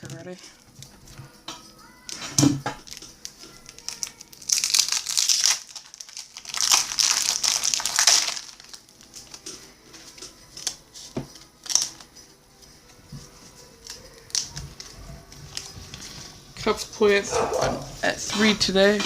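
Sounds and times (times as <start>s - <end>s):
wrapper crinkling: 1.8s - 16.6s.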